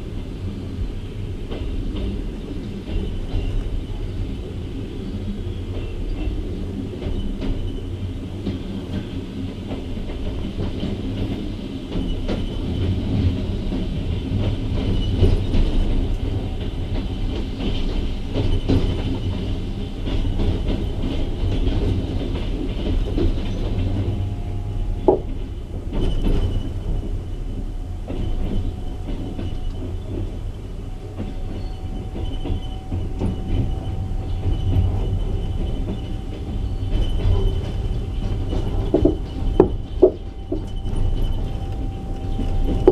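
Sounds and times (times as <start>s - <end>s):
train wheels rolling on track: 0.0s - 42.9s
wheels clicking over rail joints: 0.0s - 42.9s
wheel squeal: 11.9s - 42.9s.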